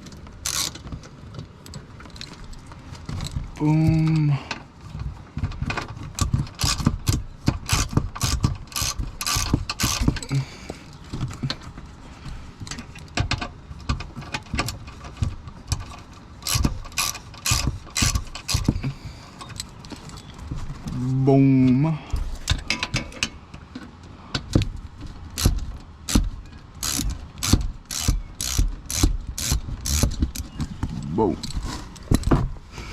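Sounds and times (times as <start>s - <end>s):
hand ratchet clicking: 0.4s - 0.8s, 6.2s - 10.2s, 15.7s - 19.0s, 25.4s - 30.5s.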